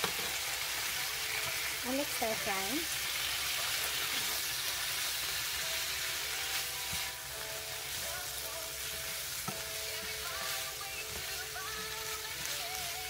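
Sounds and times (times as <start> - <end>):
food sizzling in a frying pan: 0.0 - 13.0
spatula knocking on pan: 9.4 - 9.7.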